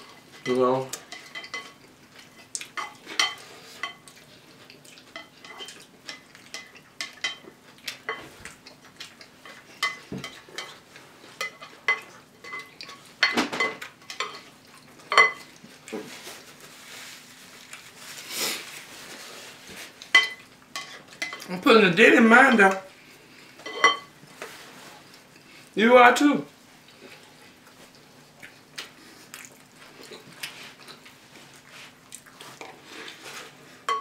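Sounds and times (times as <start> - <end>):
faint steady hum: 0.0 - 34.0
spoons clinking against bowls: 23.6 - 24.1.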